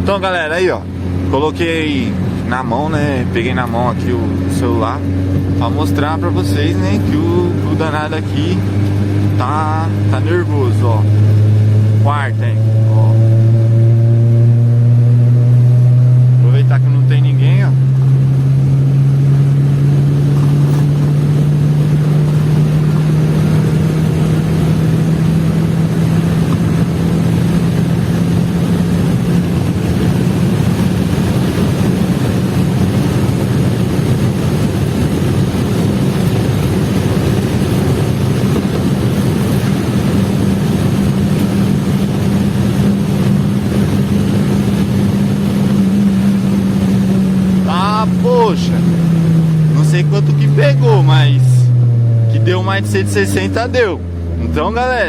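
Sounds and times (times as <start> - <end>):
car engine under full throttle: 0.0 - 55.0
wind and road noise: 0.0 - 55.0.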